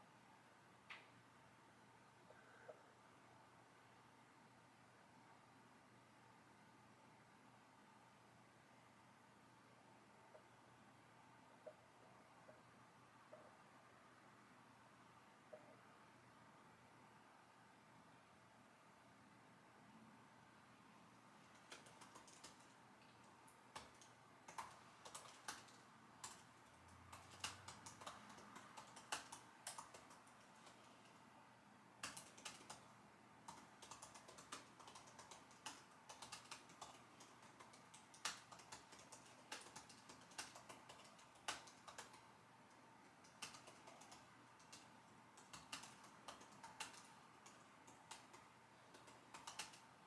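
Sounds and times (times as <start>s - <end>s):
typing on keyboard: 21.4s - 31.3s, 32.0s - 50.0s.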